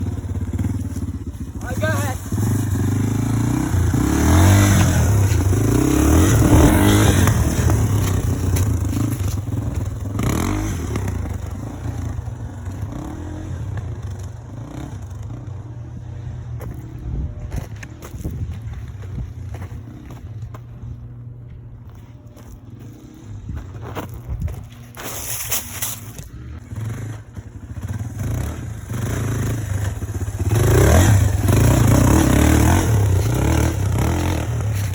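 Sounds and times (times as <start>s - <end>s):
dirt bike engine revving: 0.0s - 21.0s, 22.6s - 34.9s
rattling and scraping: 22.6s - 28.0s.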